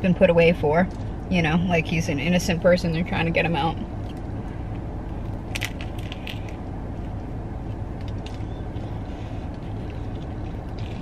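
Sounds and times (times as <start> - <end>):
steady low hum: 0.0 - 11.0
crunchy chewing: 4.0 - 11.0.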